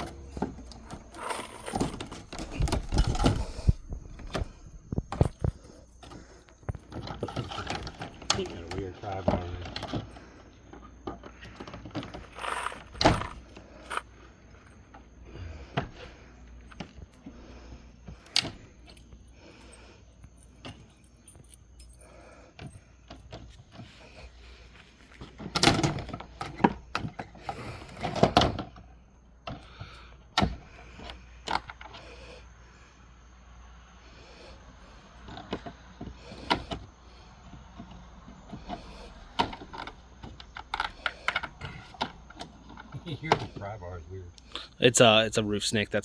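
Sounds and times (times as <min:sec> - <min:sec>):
vinyl siding being pried loose: 0:00.0 - 0:06.2, 0:25.2 - 0:28.8.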